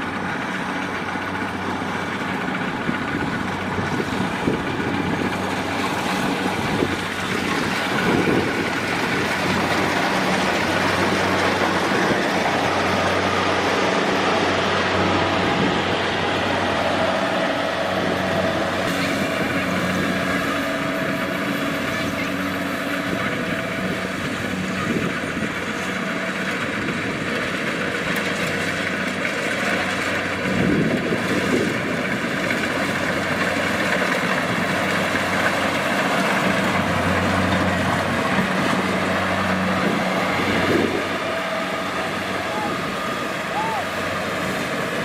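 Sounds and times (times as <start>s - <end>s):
combine harvester running: 0.0s - 45.0s.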